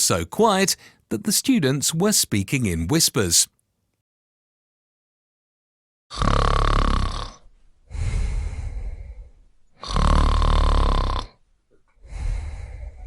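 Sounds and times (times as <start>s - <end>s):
person snoring: 6.1s - 11.4s, 12.0s - 13.0s
person breathing out: 7.9s - 10.0s, 12.0s - 13.0s.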